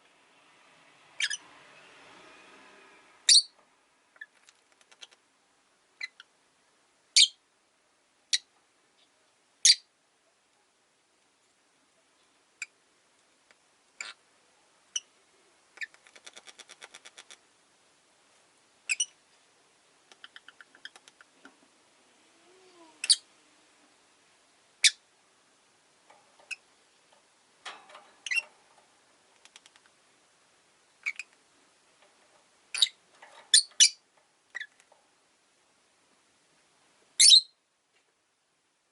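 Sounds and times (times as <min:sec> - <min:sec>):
lovebirds chirping: 0:01.2 - 0:01.4, 0:03.3 - 0:05.2, 0:06.0 - 0:06.4, 0:07.2 - 0:07.4, 0:14.0 - 0:14.2, 0:18.8 - 0:19.2, 0:20.1 - 0:21.5, 0:22.4 - 0:23.4, 0:24.8 - 0:25.1, 0:28.1 - 0:28.6, 0:31.0 - 0:31.4, 0:32.6 - 0:34.9, 0:37.2 - 0:37.6
rapid clicking bird notes: 0:29.3 - 0:30.0.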